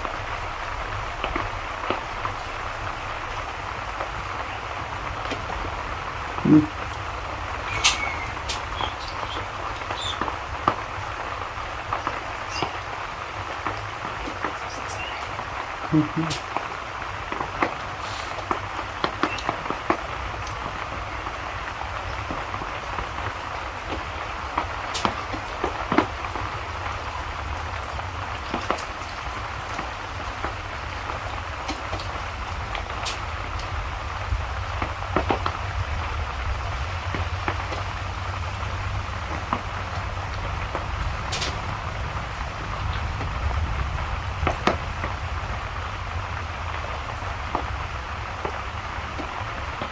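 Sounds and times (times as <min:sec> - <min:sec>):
steady rain: 0:00.0 - 0:49.9
wood fire popping and crackling: 0:00.0 - 0:49.9
low background rumble: 0:18.6 - 0:49.9.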